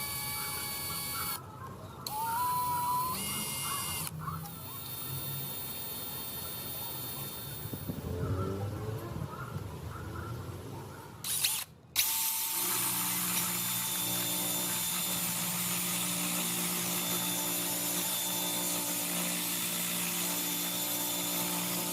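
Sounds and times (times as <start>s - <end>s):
electric drill whine: 0.0s - 1.4s, 2.1s - 4.1s, 4.7s - 7.9s, 11.2s - 21.9s.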